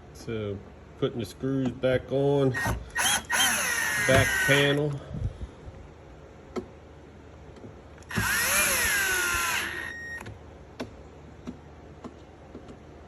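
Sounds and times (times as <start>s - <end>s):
cordless drill motor whine: 2.6s - 4.9s, 8.0s - 10.3s.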